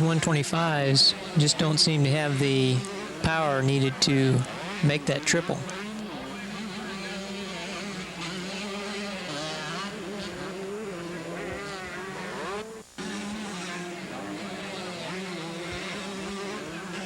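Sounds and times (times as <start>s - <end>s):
motocross bikes racing: 0.0s - 17.0s.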